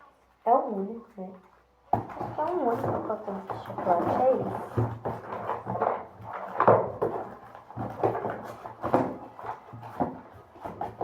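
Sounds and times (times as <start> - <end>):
light knocks and rustles of toys: 0.0 - 11.0.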